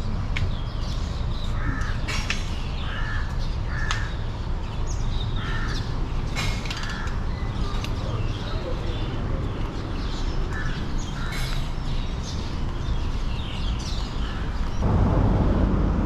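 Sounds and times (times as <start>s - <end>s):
bird harsh calls: 0.8s - 4.4s, 5.0s - 14.8s
low background rumble: 14.7s - 16.0s.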